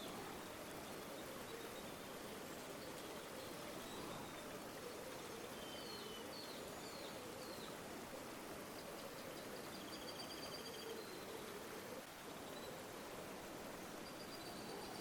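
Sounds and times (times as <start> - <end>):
faint bird chirps: 0.0 - 7.8, 8.7 - 11.7, 14.0 - 15.0
river water flowing: 0.0 - 15.0.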